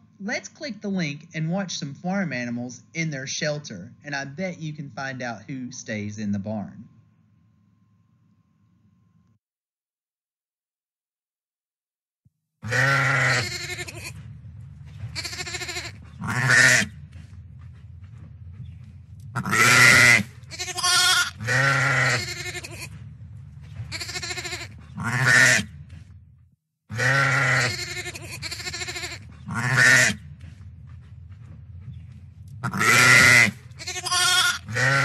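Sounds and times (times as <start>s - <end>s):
steady low hum: 0.0s - 9.4s, 12.6s - 35.0s
animals bleating: 12.6s - 14.3s, 14.9s - 17.0s, 19.4s - 23.0s, 23.7s - 25.8s, 26.9s - 30.3s, 32.6s - 35.0s.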